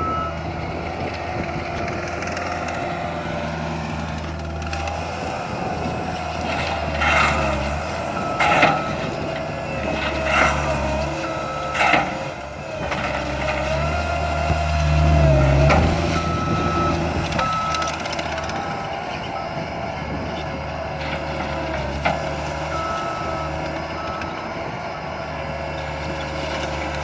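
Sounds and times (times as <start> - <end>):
backup alarm beeping: 0.0 - 0.5, 15.2 - 19.7
skid steer loader engine: 0.0 - 27.0.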